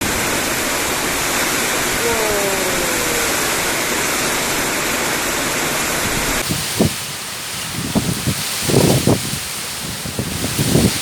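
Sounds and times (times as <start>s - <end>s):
heavy rain in strong wind: 0.0s - 11.0s
faint falling tone: 1.9s - 4.8s.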